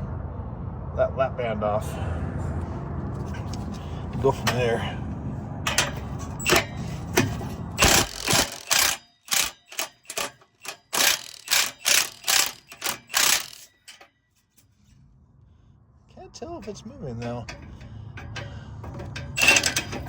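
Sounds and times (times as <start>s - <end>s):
low steady rumble: 0.0s - 8.8s, 14.7s - 20.0s
sharp knocks on exhaust pipe: 17.3s - 19.4s.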